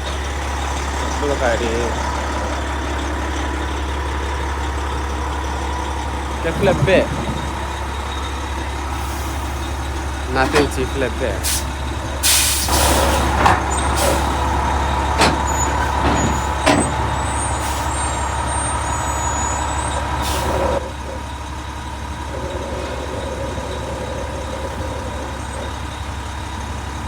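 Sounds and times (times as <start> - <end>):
truck engine hum: 0.0 - 27.0
short air hiss: 12.2 - 13.3.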